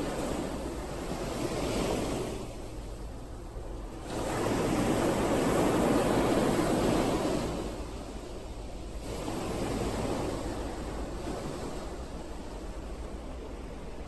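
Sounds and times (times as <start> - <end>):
ocean waves washing onto shore: 0.0 - 14.0.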